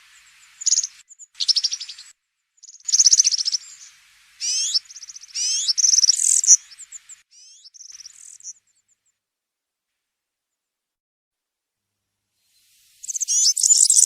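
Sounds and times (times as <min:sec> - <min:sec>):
songbird jingling song: 0:00.1 - 0:09.0, 0:13.0 - 0:14.0.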